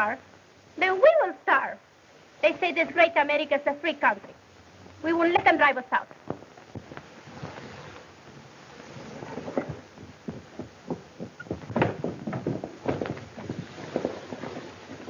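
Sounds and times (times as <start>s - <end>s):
clatter of knocks and thuds: 9.1s - 15.0s.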